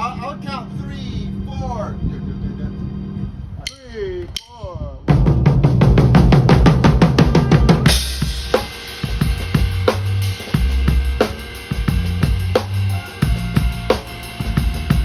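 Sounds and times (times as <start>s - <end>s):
low bass line: 0.0s - 3.7s, 5.1s - 8.6s, 9.2s - 15.0s
drum kit: 4.4s - 15.0s
snare backbeat: 5.1s - 15.0s.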